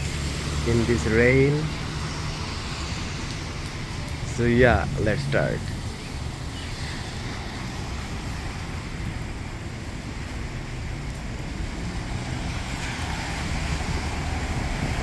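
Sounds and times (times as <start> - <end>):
steady rain: 0.0 - 15.0
wind buffeting microphone: 7.6 - 15.0.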